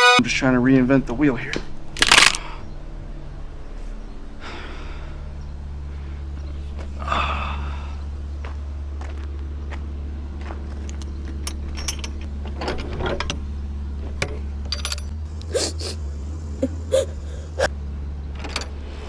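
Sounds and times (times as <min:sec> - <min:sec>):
diesel engine idling: 0:00.0 - 0:19.0
sharp metallic clicks: 0:00.1 - 0:02.8.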